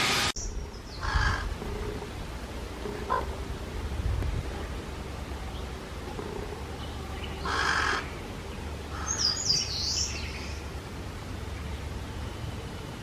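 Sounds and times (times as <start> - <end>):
harsh bird call: 8.9 - 10.6.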